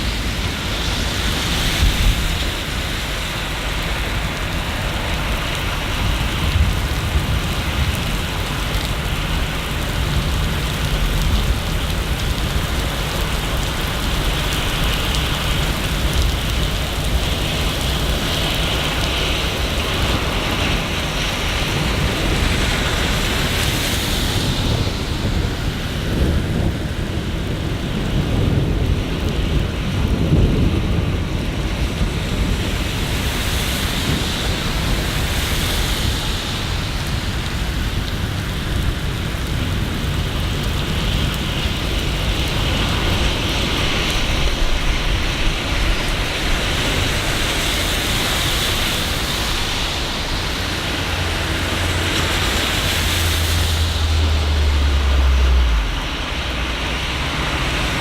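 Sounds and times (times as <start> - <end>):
rain hissing: 0.0 - 58.0
low rumble: 48.2 - 58.0.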